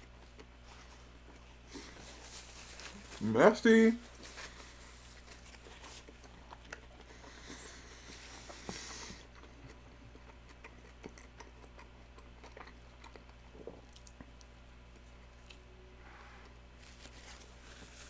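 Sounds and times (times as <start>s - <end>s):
chewing sandwich: 0.0s - 3.3s, 4.0s - 18.0s
soft rustle: 0.6s - 3.3s, 4.0s - 6.2s, 16.1s - 18.0s.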